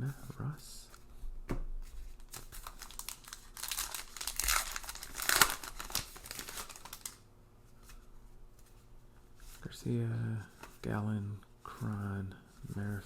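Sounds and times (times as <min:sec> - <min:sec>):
wrapper crinkling and tearing: 0:02.2 - 0:07.2.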